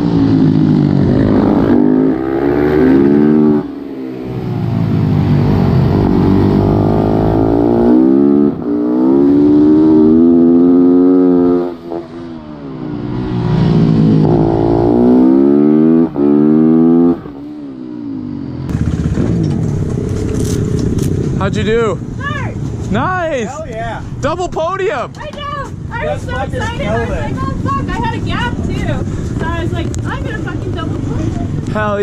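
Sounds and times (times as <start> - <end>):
motorcycle engine revving: 0.0 - 22.1.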